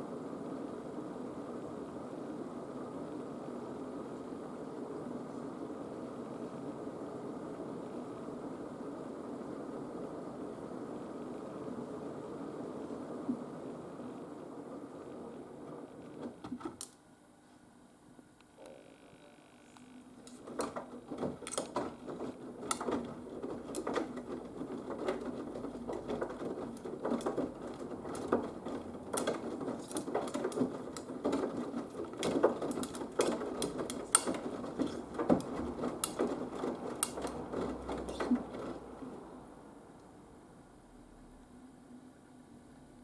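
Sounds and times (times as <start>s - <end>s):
irregular clicks and knocks: 20.2s - 38.9s
washing machine drum churning: 20.2s - 39.5s.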